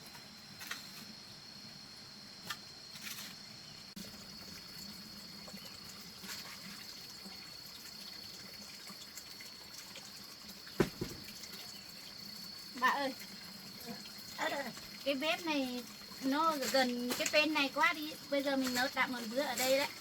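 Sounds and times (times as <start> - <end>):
high insect drone: 0.0 - 20.0
water trickling and dripping: 4.0 - 20.0
sharp knock: 10.8 - 11.2.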